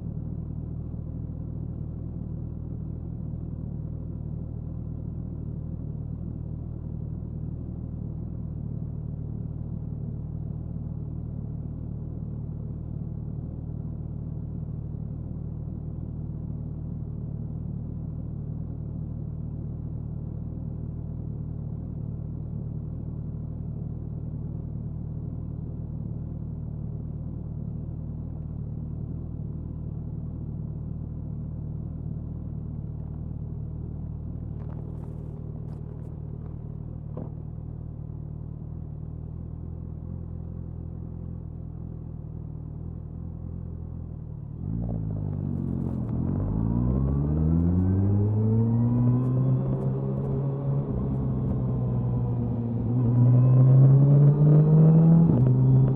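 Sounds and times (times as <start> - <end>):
motorcycle engine cruising: 44.4 - 55.9.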